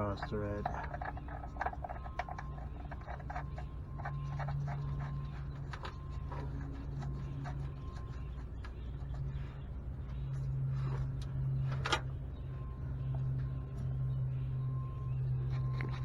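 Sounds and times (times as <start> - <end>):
metal clicks and scrapes: 0.0 - 9.4
steady low hum: 0.0 - 16.0.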